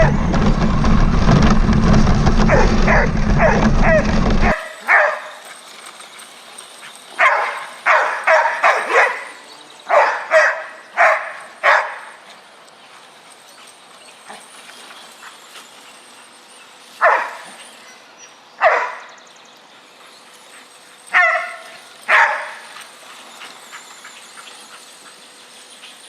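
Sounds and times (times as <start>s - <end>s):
dog barking: 2.5s - 5.4s, 7.2s - 12.1s, 17.0s - 17.4s, 18.6s - 19.1s, 21.1s - 22.6s.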